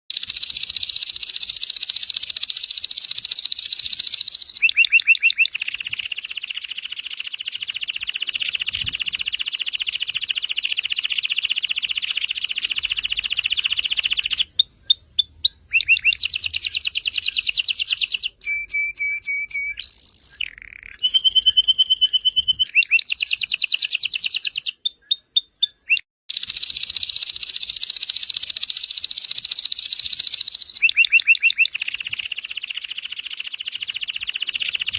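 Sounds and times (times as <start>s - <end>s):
canary singing trills: 0.1s - 34.9s.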